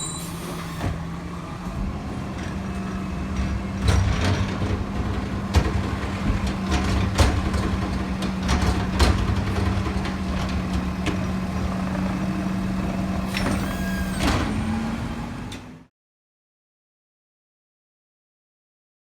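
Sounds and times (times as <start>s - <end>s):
air brake hiss: 0.0s - 1.0s, 13.3s - 14.2s
garbage truck engine rumbling: 0.0s - 15.9s
knocks and clanks: 1.7s - 12.0s.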